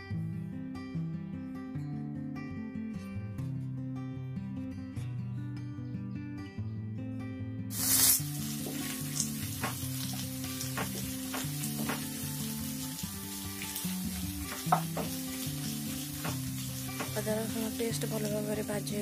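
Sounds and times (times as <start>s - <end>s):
onions sizzling in oil: 7.7s - 19.0s
spatula scraping and knocking pan: 8.4s - 12.8s, 14.1s - 17.6s.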